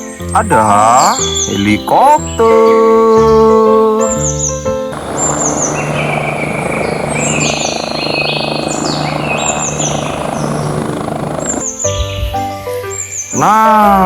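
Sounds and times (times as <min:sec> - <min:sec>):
bird chirps: 0:03.1 - 0:13.5
helicopter engine and rotor drone: 0:04.9 - 0:11.9.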